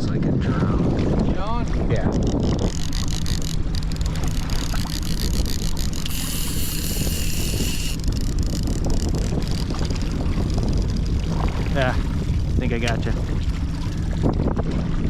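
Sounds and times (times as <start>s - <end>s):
boat motor running: 0.0s - 15.0s
wind rumbling on microphone: 0.0s - 15.0s
high hissing buzz: 4.1s - 8.2s.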